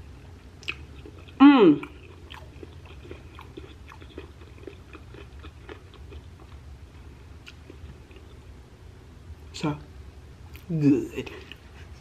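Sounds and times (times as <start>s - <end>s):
low steady hum: 0.0s - 12.0s
wet chewing mouth smacks: 0.6s - 6.6s.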